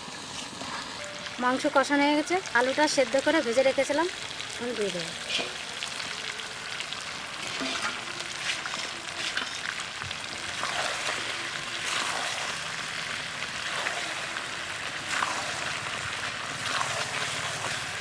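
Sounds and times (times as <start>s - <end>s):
food sizzling in a metal pan: 0.0s - 18.0s
metal spatula scraping and clinking: 7.5s - 9.7s.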